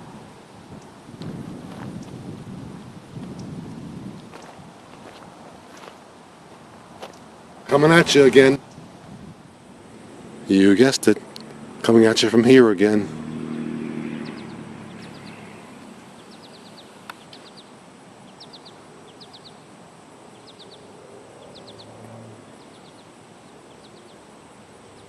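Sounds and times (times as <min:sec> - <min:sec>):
outdoor background noise: 0:00.0 - 0:25.0
bird chirping: 0:03.2 - 0:03.6, 0:13.2 - 0:25.0.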